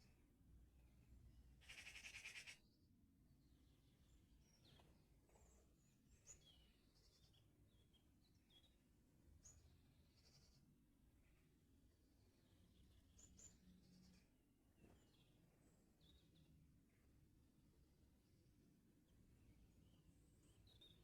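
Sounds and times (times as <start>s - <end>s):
small birds singing: 0.8s - 17.2s, 17.8s - 21.0s
buzzy rattling bird phrase: 1.7s - 2.6s.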